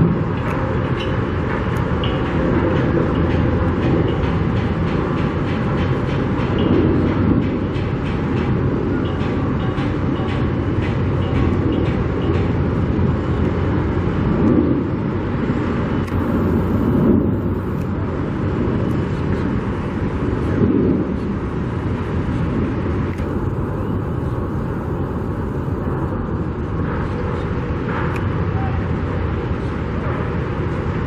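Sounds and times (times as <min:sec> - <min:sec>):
outdoor rumble: 0:12.6 - 0:28.4.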